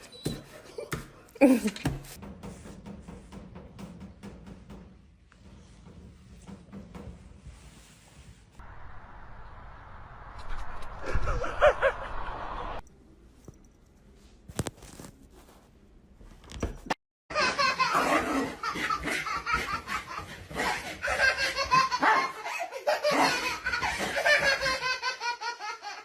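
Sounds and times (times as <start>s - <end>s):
people laughing loudly: 11.0s - 12.8s.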